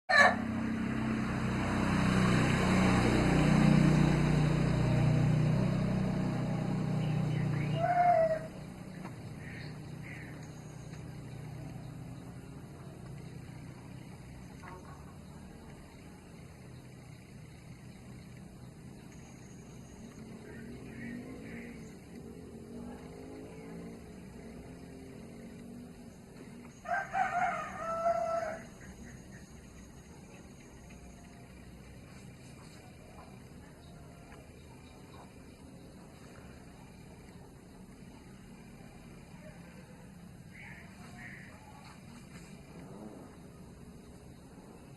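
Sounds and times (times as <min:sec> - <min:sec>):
rooster crowing: 0:00.1 - 0:00.5, 0:07.6 - 0:08.6, 0:26.8 - 0:28.8
vehicle engine passing by: 0:00.1 - 0:44.9.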